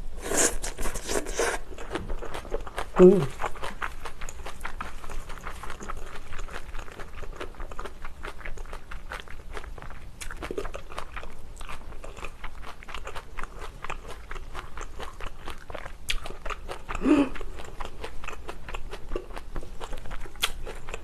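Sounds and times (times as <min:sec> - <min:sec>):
wet crunchy chewing: 0:00.2 - 0:21.0
throat sound: 0:03.0 - 0:03.4, 0:17.0 - 0:17.4.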